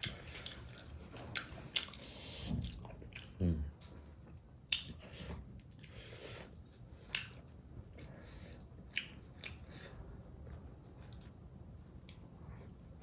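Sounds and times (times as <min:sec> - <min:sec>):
person chewing food: 0:00.0 - 0:13.0
wet mouth clicks and smacks: 0:04.7 - 0:05.0.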